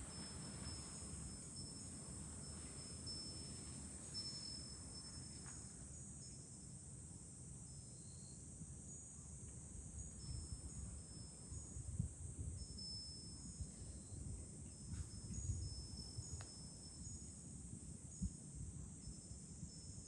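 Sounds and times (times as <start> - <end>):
cicadas droning: 0.0 - 20.0
wind rumbling on microphone: 9.6 - 20.0.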